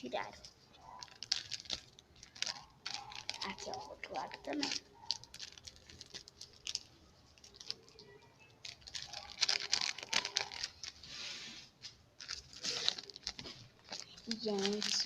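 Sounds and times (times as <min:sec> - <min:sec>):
paper crinkling: 0:00.2 - 0:15.0
paper tearing: 0:12.2 - 0:13.5.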